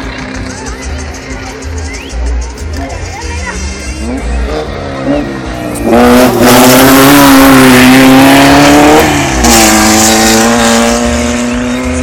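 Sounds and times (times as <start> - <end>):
race car engine at high revs: 4.0 - 12.0.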